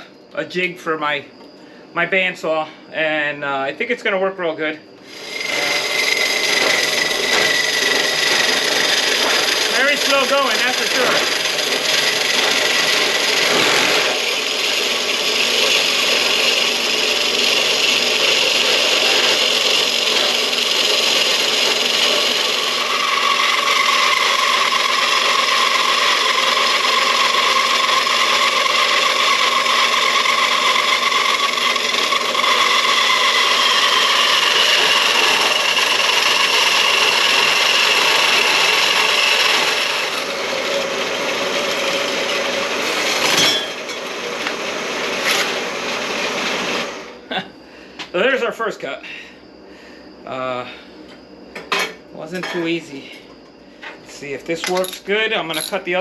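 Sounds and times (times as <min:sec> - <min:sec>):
bandsaw cutting steel tubing: 0:05.0 - 0:47.0, 0:54.7 - 0:56.0.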